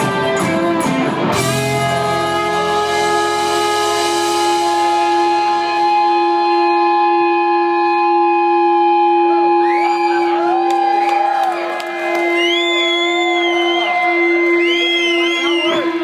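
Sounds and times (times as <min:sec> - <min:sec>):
rock band sustained chord: 0:00.0 - 0:09.8
audience whistling and cheering: 0:07.8 - 0:16.0.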